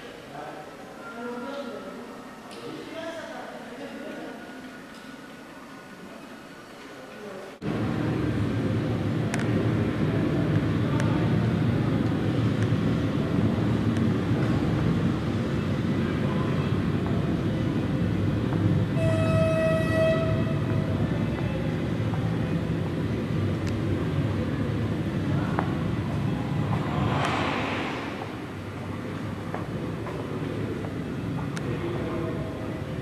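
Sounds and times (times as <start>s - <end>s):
train rumble: 7.6s - 33.0s
train horn held tone: 18.9s - 21.0s.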